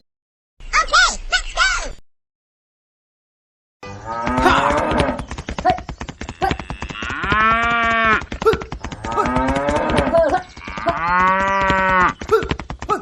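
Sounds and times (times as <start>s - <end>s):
cattle mooing: 4.0s - 5.2s, 6.3s - 8.2s, 8.9s - 12.2s
rapid ticking: 4.6s - 13.0s.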